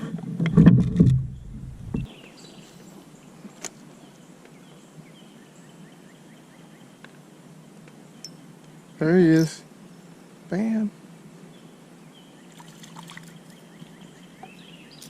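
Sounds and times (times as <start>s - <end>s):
rumbling handling noise: 0.0s - 2.1s.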